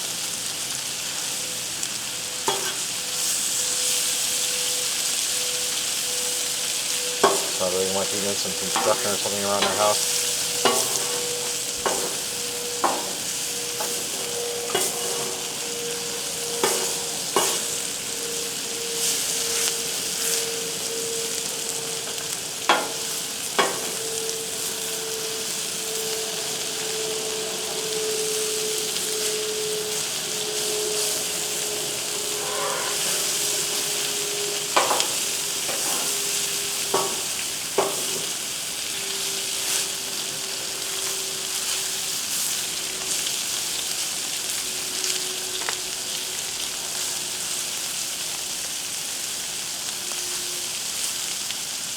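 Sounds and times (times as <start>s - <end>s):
food sizzling on a griddle: 0.0s - 51.9s
background hum: 6.7s - 47.0s.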